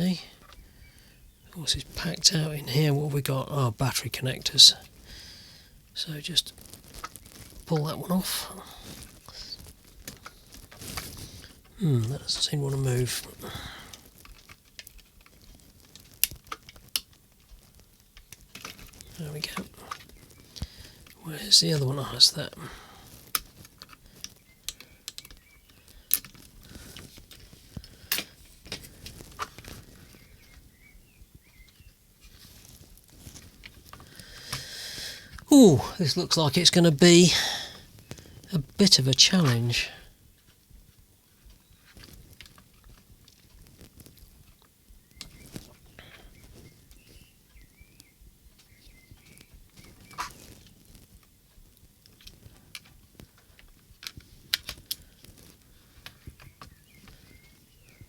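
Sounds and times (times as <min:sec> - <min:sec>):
plastic parts clicking: 0:23.3 - 0:29.6.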